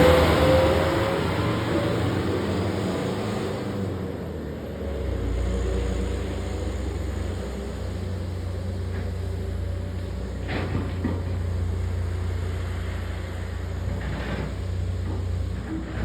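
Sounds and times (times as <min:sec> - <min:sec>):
truck engine humming: 0:00.0 - 0:02.9.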